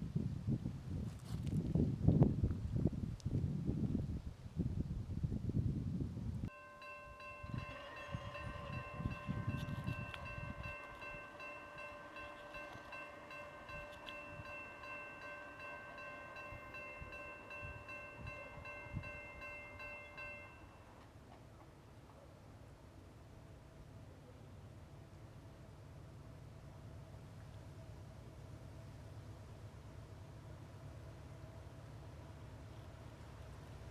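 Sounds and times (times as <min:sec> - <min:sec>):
wind rumble on microphone: 0:00.0 - 0:06.5, 0:07.4 - 0:11.3
railroad crossing bell ringing: 0:06.5 - 0:21.2.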